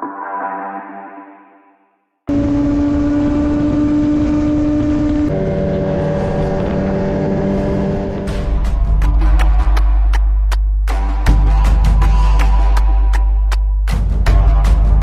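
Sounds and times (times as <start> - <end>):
motorcycle engine running: 2.3 - 9.5
wind and road noise: 2.3 - 10.4.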